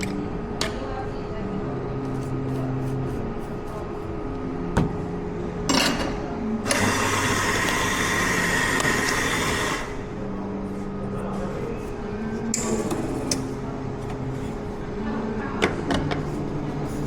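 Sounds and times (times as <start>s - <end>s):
coffee machine running: 2.1s - 15.0s.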